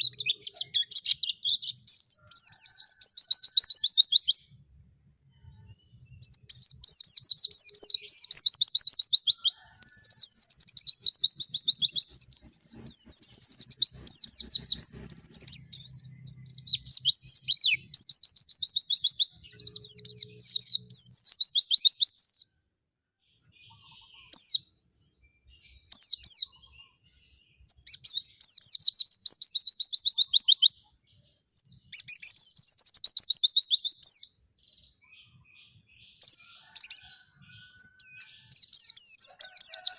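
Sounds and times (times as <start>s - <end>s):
bird warbling trills: 5.8s - 20.9s.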